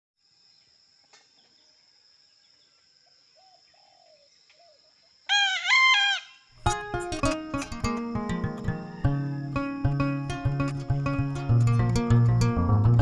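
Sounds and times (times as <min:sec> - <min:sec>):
distant rooster calls: 0:05.3 - 0:06.5, 0:08.7 - 0:10.1
rooster crowing: 0:05.3 - 0:06.5, 0:08.5 - 0:10.3.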